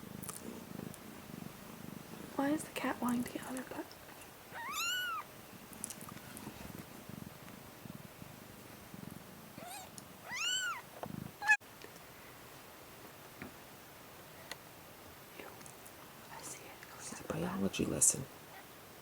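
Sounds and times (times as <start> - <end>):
cat purring: 0.0 - 11.6
kitten mewing: 4.6 - 5.3, 9.6 - 11.6.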